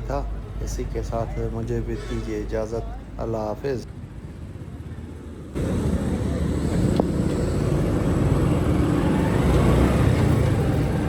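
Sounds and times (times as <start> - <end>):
motorcycle engine: 5.6 - 11.0.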